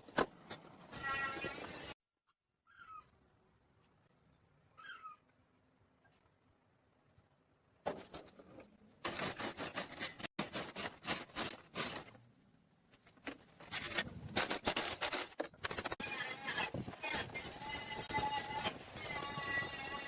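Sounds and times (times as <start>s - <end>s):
scraping strokes: 15.7s - 20.0s.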